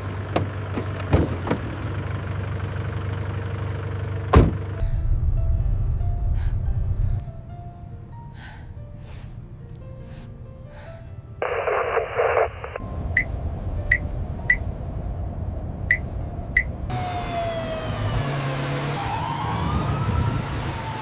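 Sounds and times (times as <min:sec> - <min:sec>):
steady hiss and rumble: 0:04.8 - 0:16.9
radio static: 0:11.4 - 0:12.8
siren wailing: 0:15.9 - 0:21.0.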